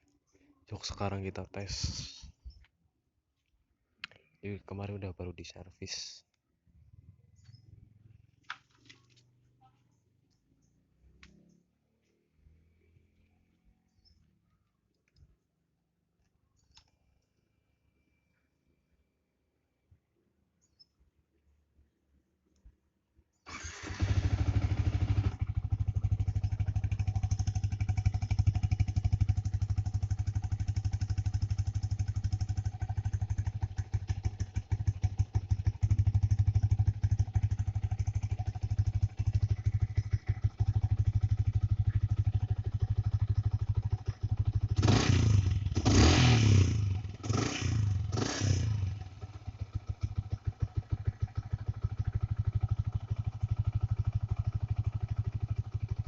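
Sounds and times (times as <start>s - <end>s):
motorcycle engine starting and idling: 6.8s - 9.6s, 10.2s - 14.3s, 23.5s - 56.0s
motorcycle engine blips: 23.5s - 46.1s, 49.0s - 56.0s.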